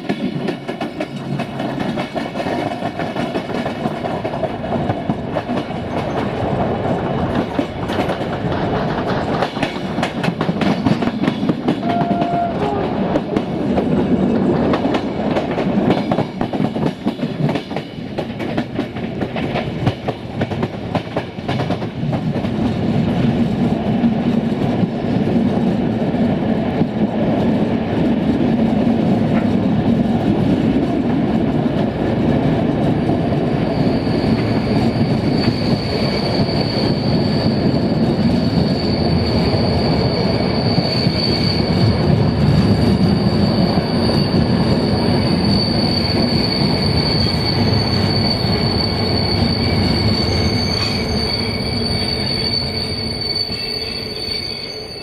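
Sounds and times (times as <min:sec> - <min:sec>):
train coaches rumbling: 0:00.0 - 0:55.0
high-pitched wheel squeal: 0:11.8 - 0:13.0, 0:33.6 - 0:55.0.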